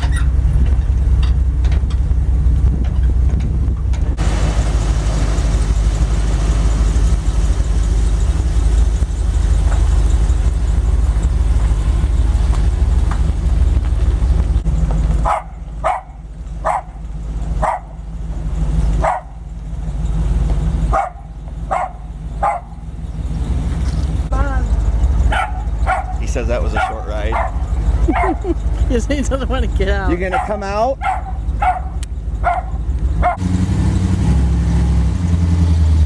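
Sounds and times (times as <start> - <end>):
vehicle engine running: 0.0 - 36.0
dog barking: 15.2 - 17.0, 17.6 - 18.0, 19.0 - 19.4, 20.9 - 22.8, 25.3 - 28.6, 30.1 - 33.4.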